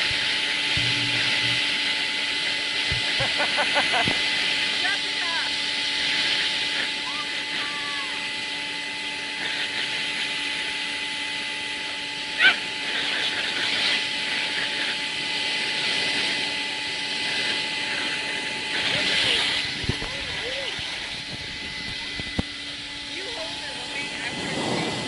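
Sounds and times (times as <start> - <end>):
vacuum cleaner running: 0.0 - 25.0
dog barking: 12.4 - 12.6
dog whining yelps: 12.4 - 12.6.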